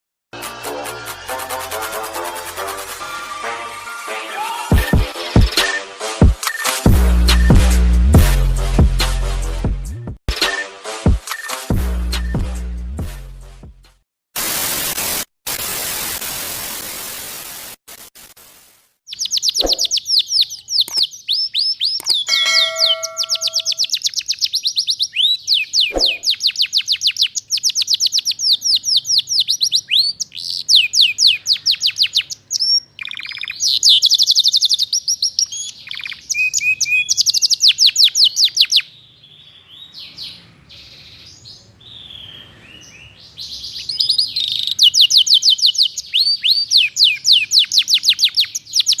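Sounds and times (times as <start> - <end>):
hiss of noise: 14.4 - 19.0
canary singing trills: 19.1 - 49.0.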